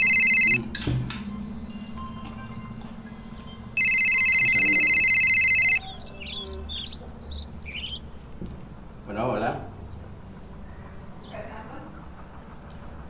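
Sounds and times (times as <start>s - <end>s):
faint steady hum: 0.0s - 0.6s, 1.7s - 5.8s
mobile phone ringing: 0.0s - 0.6s, 3.8s - 5.8s.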